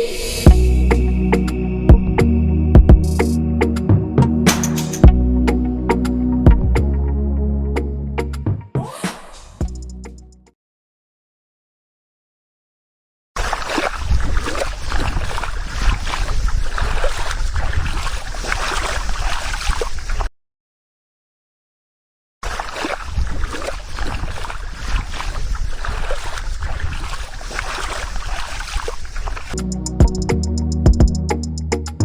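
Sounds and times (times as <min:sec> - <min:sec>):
water sloshing and splashing: 0:13.4 - 0:20.3, 0:22.4 - 0:29.6.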